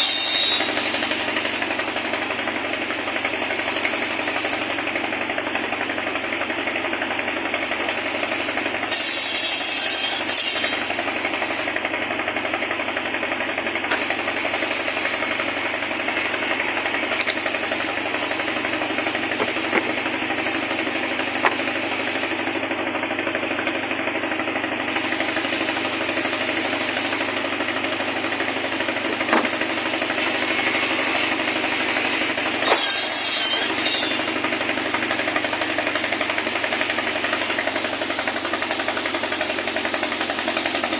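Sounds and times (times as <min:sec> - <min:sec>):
high-pitched cutting sound: 0:00.0 - 0:01.2, 0:30.1 - 0:34.4
wood cutting machine running: 0:00.0 - 0:40.9.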